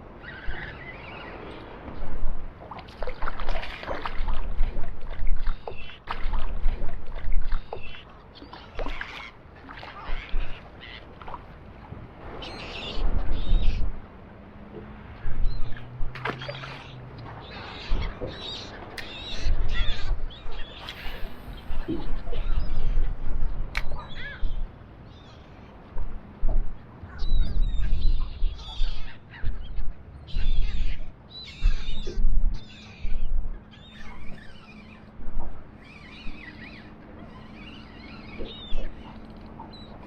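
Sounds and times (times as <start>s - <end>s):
seabirds calling: 0.0s - 40.0s
wind buffeting microphone: 9.8s - 37.0s.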